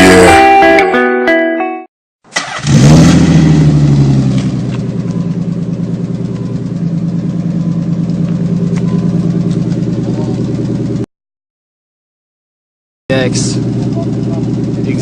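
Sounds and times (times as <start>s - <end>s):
car engine starting and idling: 2.3s - 11.1s, 13.1s - 15.0s.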